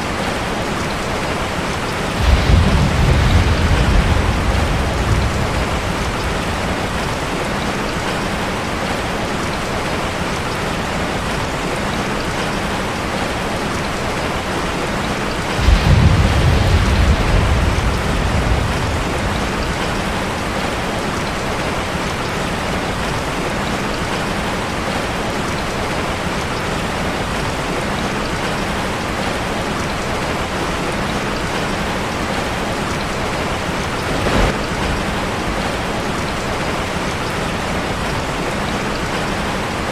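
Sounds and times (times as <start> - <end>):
rain on a metal roof: 0.0 - 39.9
low rumble: 2.2 - 7.4.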